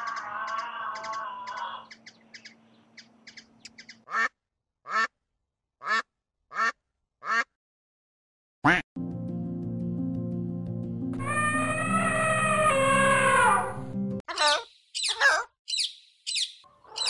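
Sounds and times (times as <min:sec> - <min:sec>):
duck quacking: 0:04.0 - 0:05.2, 0:05.8 - 0:07.6, 0:08.6 - 0:08.8.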